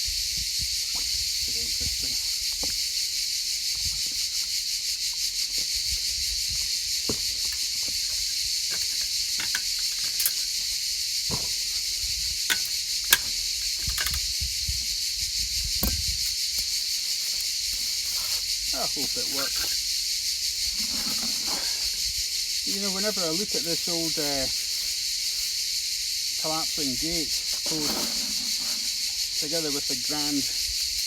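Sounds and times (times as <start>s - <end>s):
steady high hiss: 7.5s - 31.0s
trowel knocking and scraping concrete: 27.5s - 29.7s.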